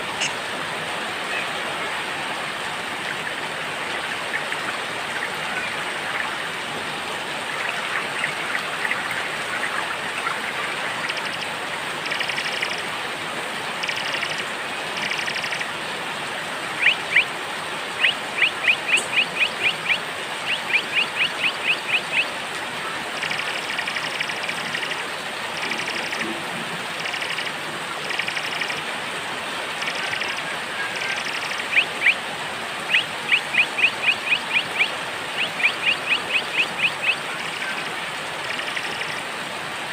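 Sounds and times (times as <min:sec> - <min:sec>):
steady rain: 0:00.0 - 0:39.9
songbirds chirping: 0:16.8 - 0:17.3, 0:32.8 - 0:39.2.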